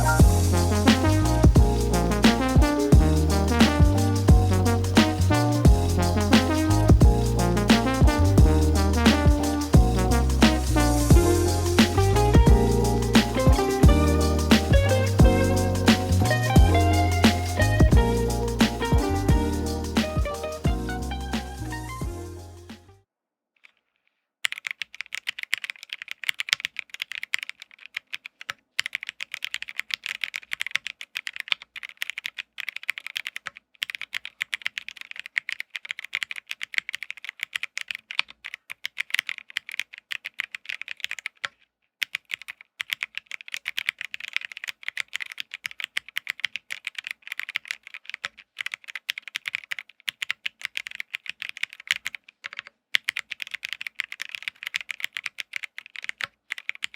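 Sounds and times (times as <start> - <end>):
fast typing on mechanical keyboard: 24.4 - 56.9.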